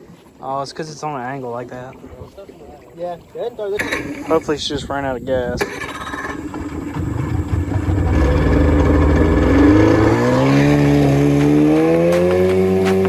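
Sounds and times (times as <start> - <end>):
boat motor revving up: 3.8 - 4.6, 5.6 - 13.0.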